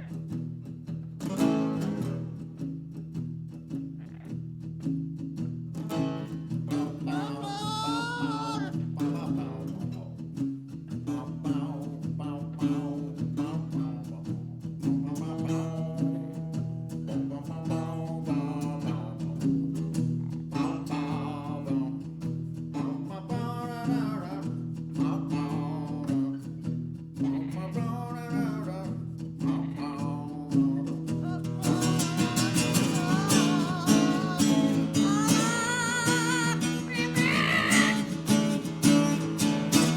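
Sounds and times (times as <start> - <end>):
acoustic guitar chords: 0.0 - 39.9
person singing: 6.7 - 9.9, 27.2 - 39.9.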